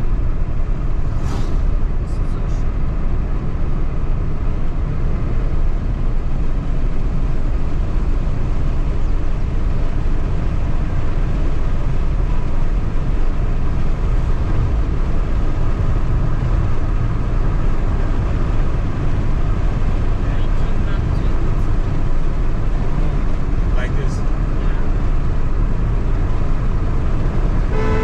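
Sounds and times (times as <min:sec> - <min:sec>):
car engine: 0:00.0 - 0:28.0
road rumble: 0:00.0 - 0:28.0.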